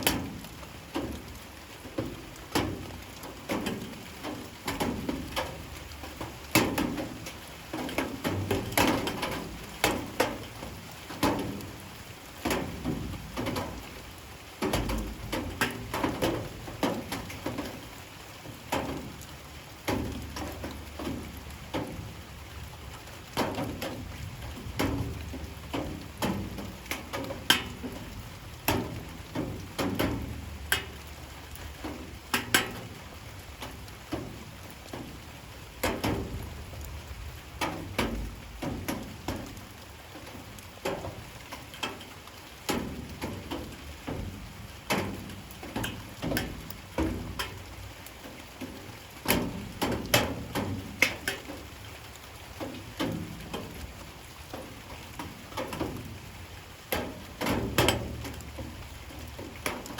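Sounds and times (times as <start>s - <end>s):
light rain pattering: 0.0s - 59.9s.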